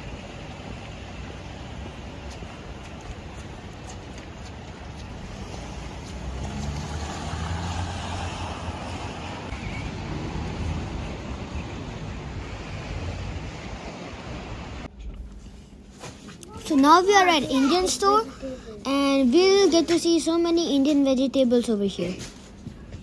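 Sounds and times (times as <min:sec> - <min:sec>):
rain: 0:00.0 - 0:04.6, 0:05.3 - 0:14.9
vehicle driving past on wet road: 0:05.1 - 0:14.9.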